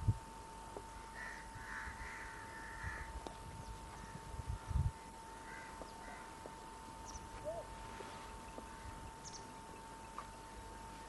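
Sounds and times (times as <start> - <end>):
high steady hum: 0.0 - 11.0
short bird calls: 7.0 - 7.8.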